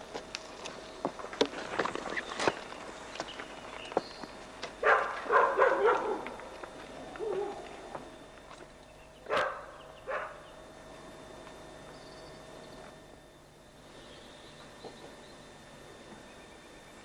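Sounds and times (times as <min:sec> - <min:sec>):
dog barking: 0:04.8 - 0:06.4, 0:07.2 - 0:07.7, 0:09.3 - 0:10.5.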